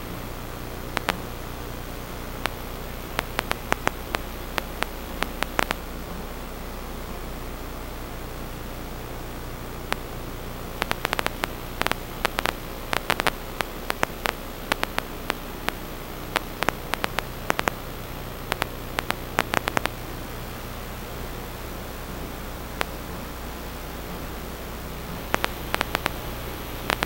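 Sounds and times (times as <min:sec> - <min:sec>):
low electrical hum: 0:00.0 - 0:27.0
static hiss: 0:00.0 - 0:27.0
sharp clicks and crackles: 0:01.0 - 0:01.4, 0:02.3 - 0:05.9, 0:09.9 - 0:10.1, 0:10.8 - 0:20.0, 0:22.8 - 0:23.0, 0:25.2 - 0:27.0.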